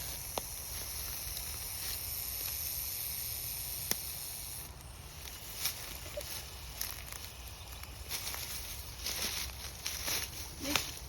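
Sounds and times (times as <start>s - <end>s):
snake hissing: 0.0s - 8.1s.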